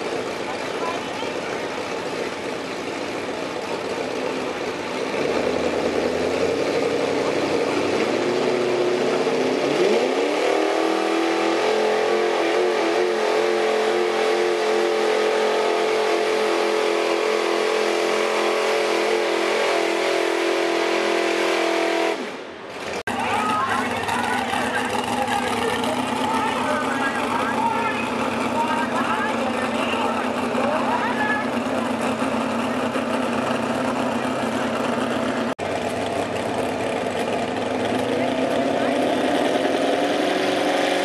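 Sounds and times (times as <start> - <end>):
truck engine revving: 0.0 - 41.0.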